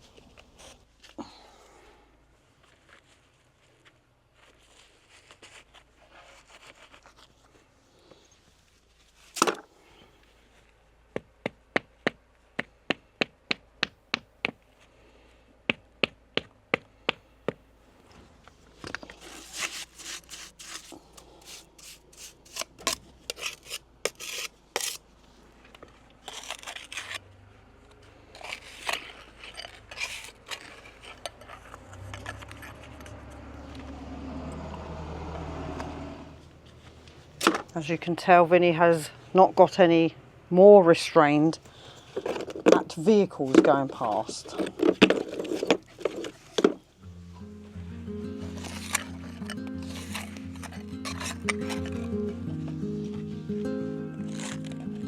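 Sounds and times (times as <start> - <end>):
scraping and rubbing stone: 18.8 - 25.1, 26.2 - 27.2, 28.2 - 33.4, 42.0 - 46.9, 48.4 - 52.2, 54.2 - 55.0.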